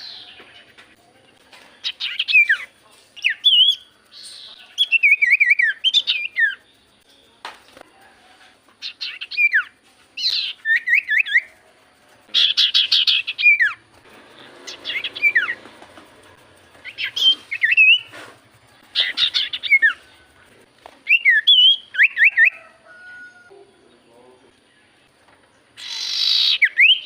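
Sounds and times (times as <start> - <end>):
bird singing chattering notes: 0.0 - 7.7, 8.8 - 11.6, 12.2 - 22.5, 23.8 - 27.0
bird whistles down-slurred: 25.8 - 27.0.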